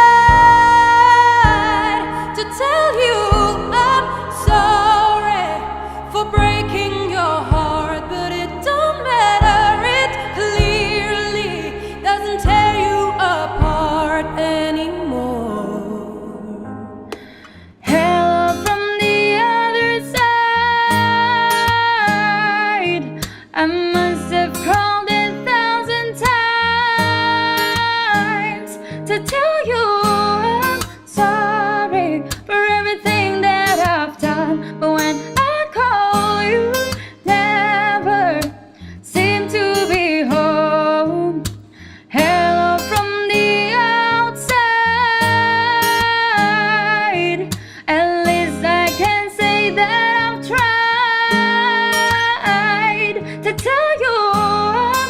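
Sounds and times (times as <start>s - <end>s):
woman singing with vibrato: 0.0s - 17.1s, 17.8s - 41.5s, 42.1s - 55.0s
acoustic guitar: 0.0s - 55.0s.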